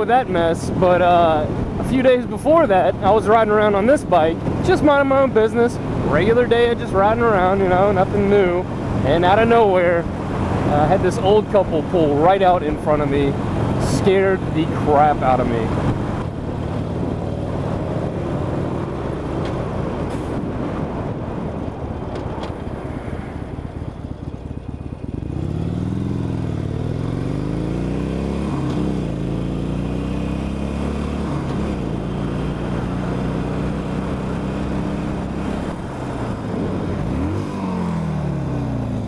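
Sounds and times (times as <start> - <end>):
wind noise on microphone: 13.2 - 24.4, 34.8 - 39.0
motorcycle engine running: 22.0 - 39.0.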